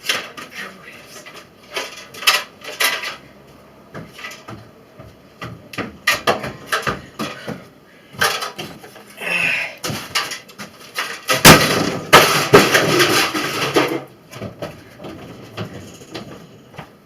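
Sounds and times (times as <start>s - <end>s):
hard knocks and clattering bangs: 3.9s - 8.8s, 9.8s - 17.0s.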